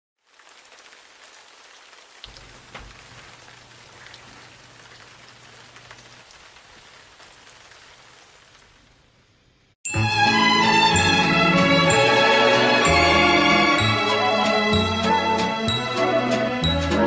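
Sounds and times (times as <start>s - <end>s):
steady rain falling: 0.2s - 9.8s.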